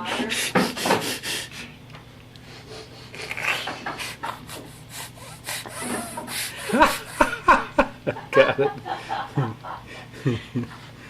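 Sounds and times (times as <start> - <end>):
baby sniffing: 0.2 - 1.8, 2.5 - 7.3.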